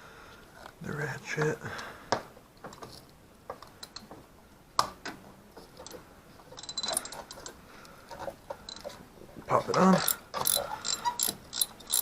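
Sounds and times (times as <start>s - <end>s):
tool clinks: 5.8s - 7.5s, 10.0s - 12.0s
socket ratchet clicking: 10.0s - 12.0s.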